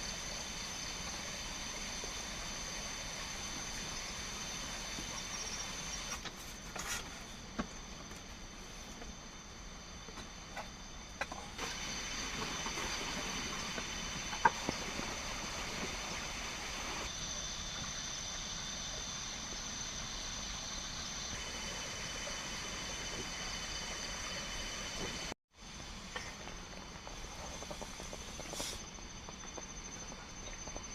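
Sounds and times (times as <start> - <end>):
light hiss: 10.2 - 29.0.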